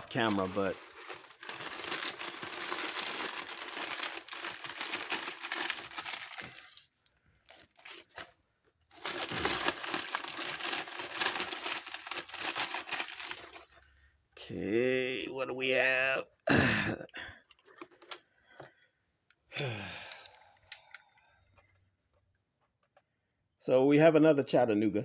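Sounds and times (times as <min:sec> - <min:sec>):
packaging crinkling and rustling: 0:00.0 - 0:13.8, 0:17.5 - 0:18.7.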